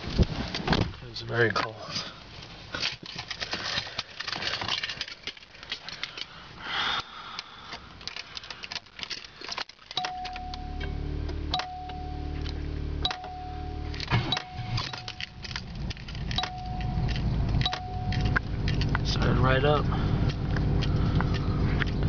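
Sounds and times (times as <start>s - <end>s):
car engine starting and idling: 7.7s - 22.0s
steady warning tone: 10.0s - 19.4s
keys jingling: 13.2s - 19.1s.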